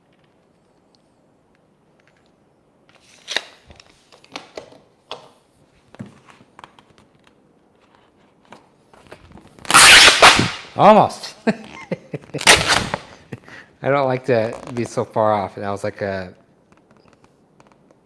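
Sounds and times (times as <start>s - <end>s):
vinyl wrap crinkling: 2.9s - 4.7s, 5.7s - 10.8s, 11.6s - 13.4s, 14.1s - 15.6s
vinyl sheet ripping off metal: 3.0s - 3.6s, 9.4s - 10.9s, 12.3s - 13.2s.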